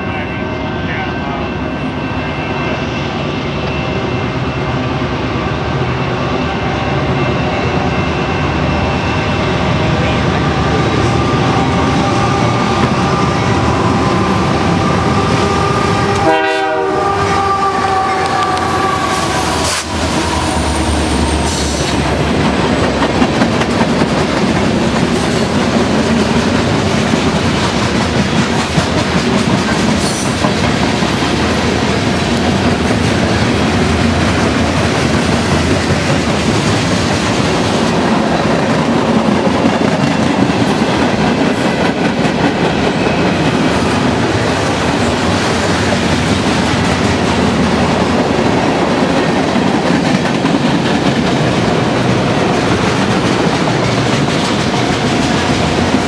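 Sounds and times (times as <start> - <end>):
locomotive air horn: 14.6 - 21.8.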